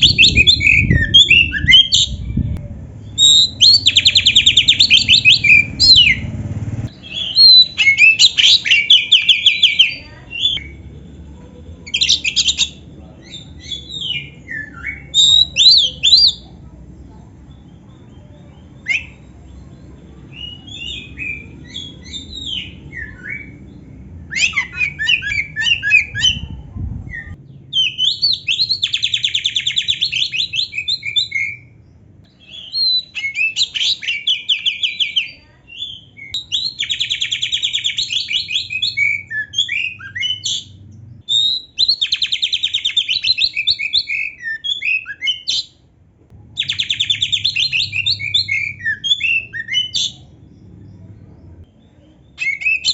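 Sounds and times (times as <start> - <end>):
bird whistled notes: 0.0 - 2.3
low rumble: 0.0 - 7.4, 25.2 - 27.7, 40.7 - 41.3.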